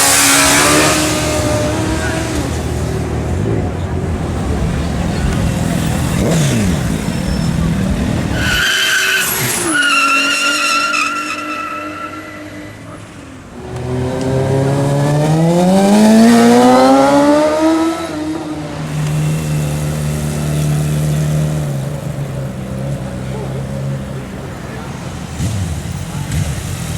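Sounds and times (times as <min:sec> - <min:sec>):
motorcycle engine accelerating: 0:00.0 - 0:08.6, 0:13.6 - 0:26.9
motorcycle passing by: 0:13.7 - 0:26.9.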